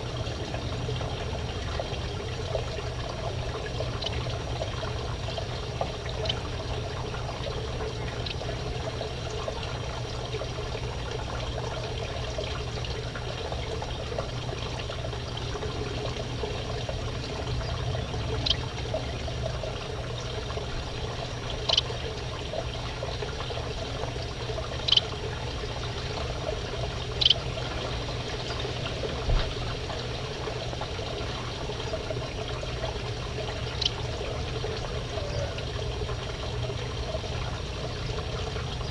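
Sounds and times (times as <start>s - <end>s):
steady trickling: 0.0s - 38.9s
finches chirping: 27.2s - 27.4s.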